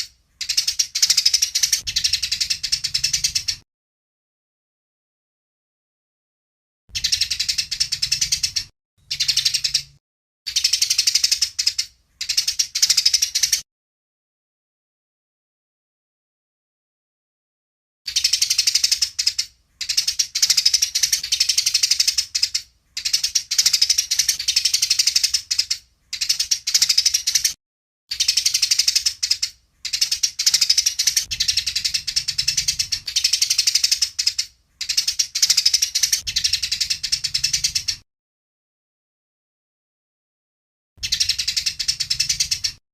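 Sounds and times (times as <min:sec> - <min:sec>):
sparrows chattering: 0:00.0 - 0:03.6, 0:06.9 - 0:13.6, 0:18.1 - 0:38.0, 0:41.0 - 0:42.8.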